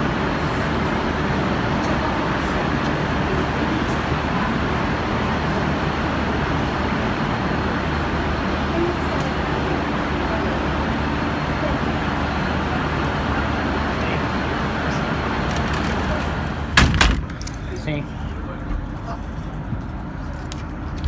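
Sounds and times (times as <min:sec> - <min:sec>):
faint voices: 0:00.0 - 0:16.7
train rumbling and humming: 0:00.0 - 0:21.0.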